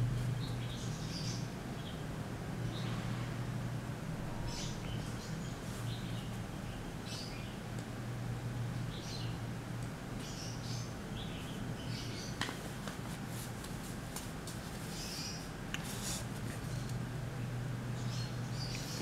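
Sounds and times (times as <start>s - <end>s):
steady low hum: 0.0s - 19.0s
small birds chirping: 0.2s - 2.1s, 4.4s - 7.8s, 8.8s - 9.5s, 10.1s - 12.6s, 14.6s - 19.0s.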